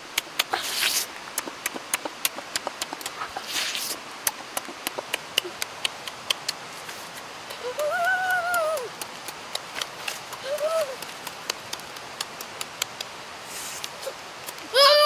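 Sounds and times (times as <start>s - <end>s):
wet chewing mouth clicks: 0.1s - 6.7s, 8.8s - 13.2s
short slurps: 0.2s - 7.1s.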